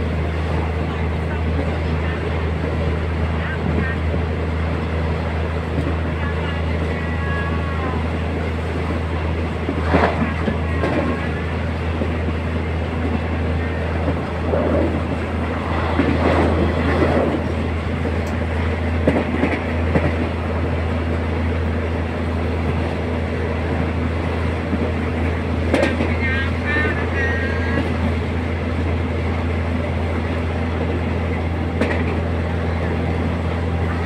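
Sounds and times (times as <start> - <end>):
low train engine drone: 0.0 - 34.0
wheels clattering over rails: 24.7 - 26.4.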